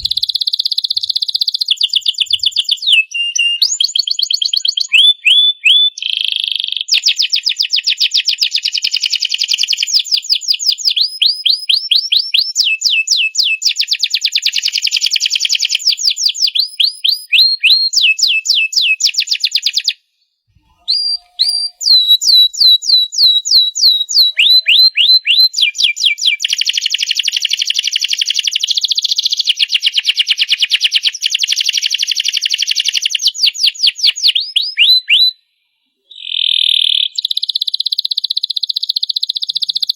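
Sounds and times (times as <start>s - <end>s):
canary singing trills: 0.0s - 6.1s, 20.6s - 26.6s.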